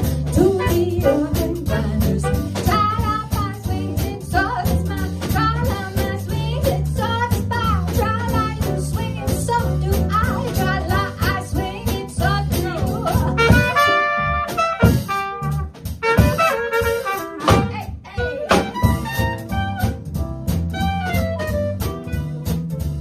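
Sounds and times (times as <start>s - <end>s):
swing jazz band playing: 0.0s - 23.0s
brass horns: 13.3s - 17.6s, 18.5s - 20.0s.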